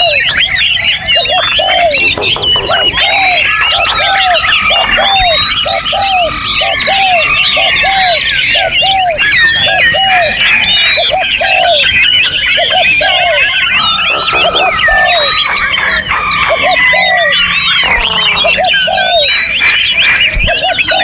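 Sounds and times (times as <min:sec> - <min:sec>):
chorus of songbirds: 0:00.0 - 0:21.0.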